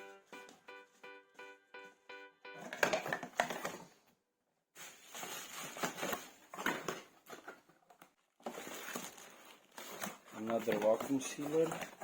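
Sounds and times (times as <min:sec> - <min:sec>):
packaging rustling and crinkling: 0:04.8 - 0:12.0.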